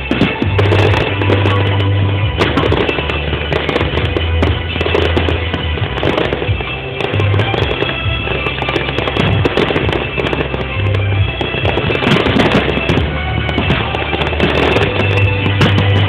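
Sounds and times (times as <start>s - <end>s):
fireworks bangs: 0.0s - 16.0s
music with low bass: 0.0s - 16.0s.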